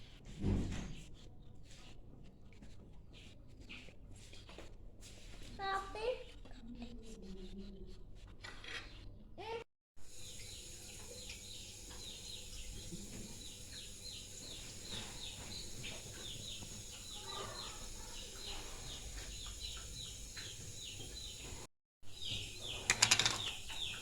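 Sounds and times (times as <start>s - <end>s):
steady low hum: 10.0s - 22.7s
birds chirping: 10.1s - 24.0s.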